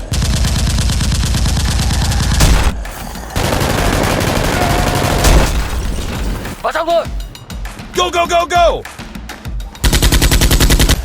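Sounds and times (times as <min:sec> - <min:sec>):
automatic gunfire bursts: 0:02.4 - 0:05.7, 0:09.8 - 0:11.0.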